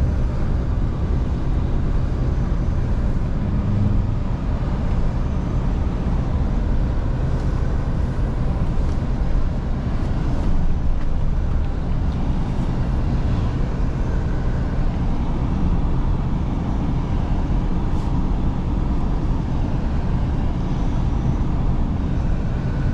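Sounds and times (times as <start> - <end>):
road noise: 0.0 - 22.9
truck engine running: 0.0 - 22.9.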